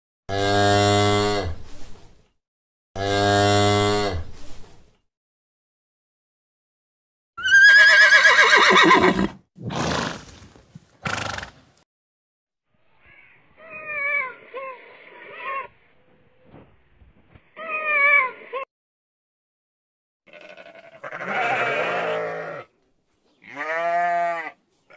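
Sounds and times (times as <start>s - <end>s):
horse neighing: 7.4s - 10.4s, 20.3s - 22.7s
horse snorting: 8.2s - 11.7s.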